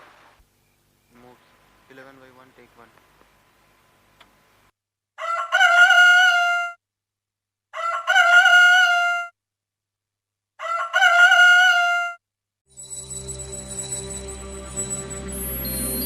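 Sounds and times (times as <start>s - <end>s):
rooster crowing: 5.2s - 6.8s, 7.8s - 9.3s, 10.6s - 12.2s.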